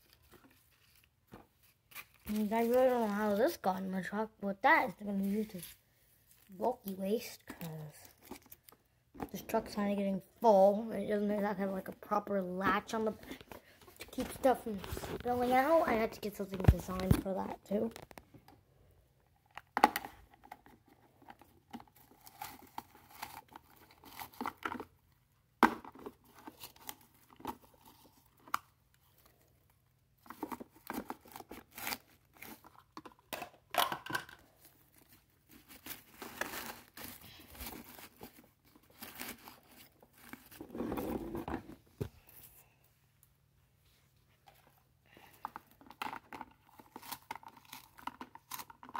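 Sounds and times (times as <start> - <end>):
rustling and crinkling: 0.0 - 18.6, 25.8 - 48.9
plastic toys clicking and rattling: 45.4 - 48.9.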